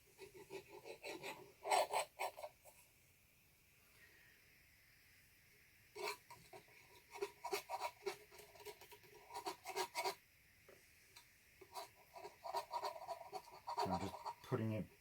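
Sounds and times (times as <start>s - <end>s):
brush scraping on canvas: 6.0s - 10.2s, 11.7s - 14.8s.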